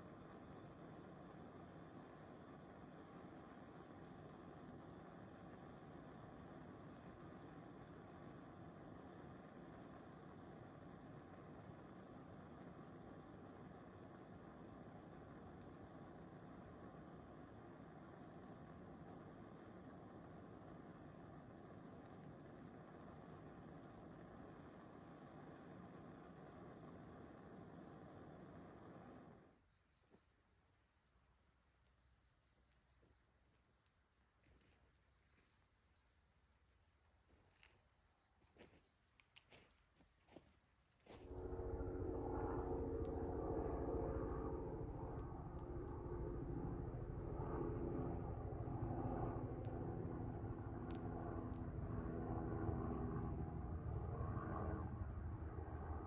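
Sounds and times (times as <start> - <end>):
insects chirping: 0.0 - 56.0
steady hum: 41.1 - 56.0
low rumble: 41.2 - 56.0.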